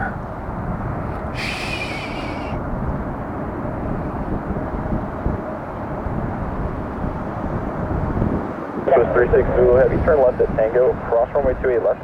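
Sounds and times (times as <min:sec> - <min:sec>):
wind buffeting microphone: 0:00.0 - 0:12.0
radio static hiss: 0:08.9 - 0:12.0.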